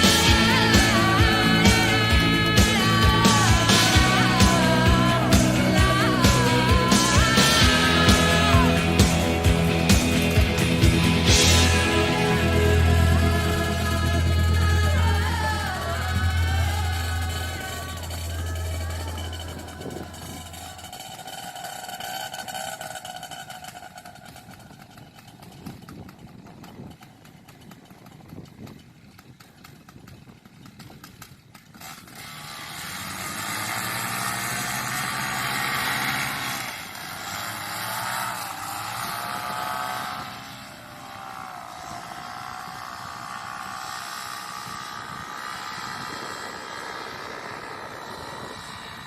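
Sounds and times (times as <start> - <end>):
paramotor engine and propeller: 0.0 - 49.0.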